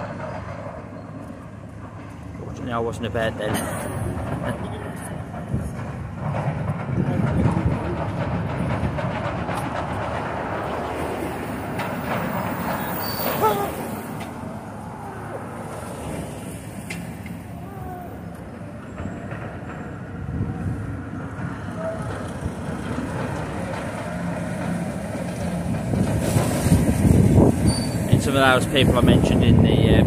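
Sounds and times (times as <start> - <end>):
road traffic rumble: 0.0 - 30.0
heavy vehicle passing: 2.9 - 29.6
brief falling squeal: 12.9 - 14.1, 27.6 - 28.1.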